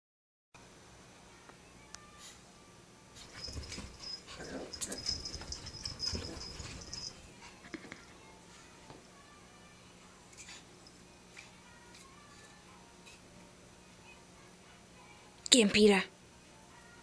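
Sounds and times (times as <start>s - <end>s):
small dogs play-fighting: 3.2s - 7.9s.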